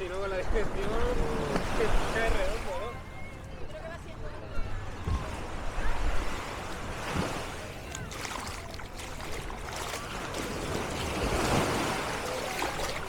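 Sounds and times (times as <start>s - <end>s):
faint voices of people: 0.0s - 13.0s
sea waves washing onto beach: 5.1s - 13.0s.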